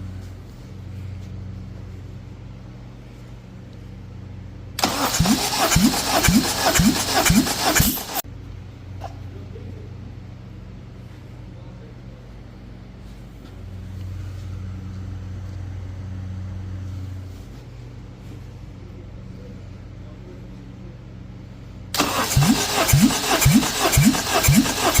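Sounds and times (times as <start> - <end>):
starter motor whirring: 4.8 - 8.2, 22.0 - 25.0.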